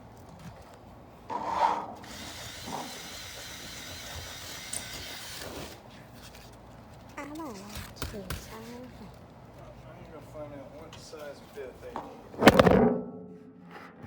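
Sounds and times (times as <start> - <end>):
power drill whining: 2.0 - 5.8.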